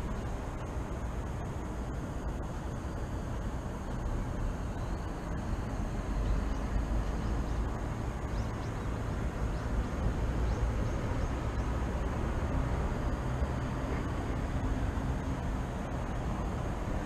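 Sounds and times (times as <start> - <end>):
distant city traffic rumble: 0.0 - 17.0
faint bird chirps: 4.4 - 12.1.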